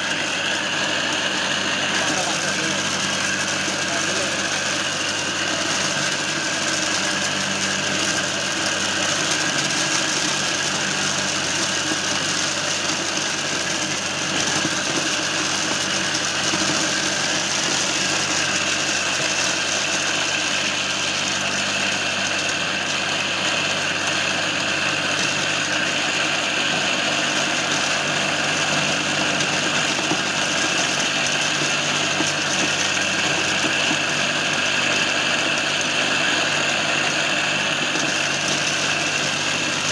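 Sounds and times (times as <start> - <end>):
electric motor humming: 0.0 - 39.9
dry corn kernels rattling: 24.2 - 39.9.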